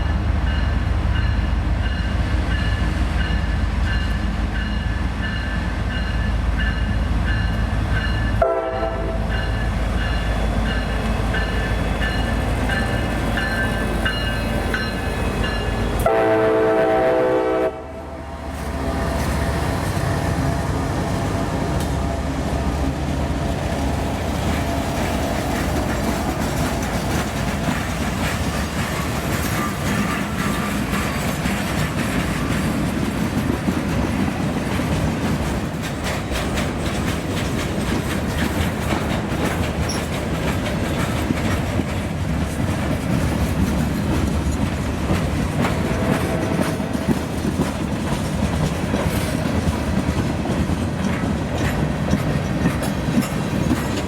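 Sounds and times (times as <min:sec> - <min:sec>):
freight train rolling by: 0:00.0 - 0:54.0
wheels clicking over rail joints: 0:20.9 - 0:54.0.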